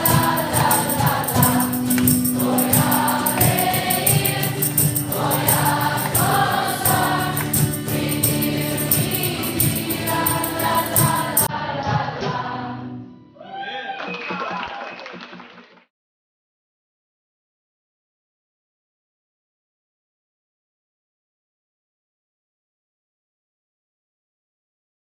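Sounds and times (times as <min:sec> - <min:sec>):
choir music with steady beat: 0:00.0 - 0:13.0.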